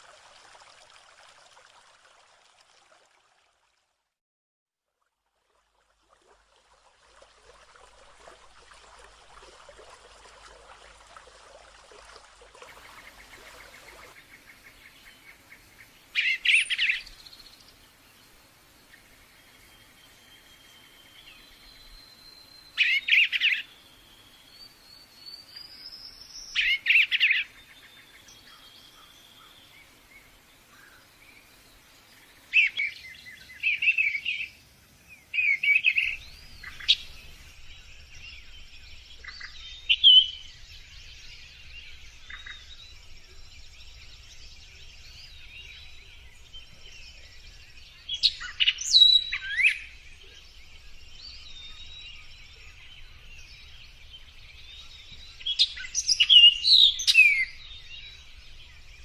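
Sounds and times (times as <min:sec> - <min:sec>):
songbird rapid chirps: 0:06.4 - 0:59.0
birds whistling and trilling: 0:35.3 - 0:59.0.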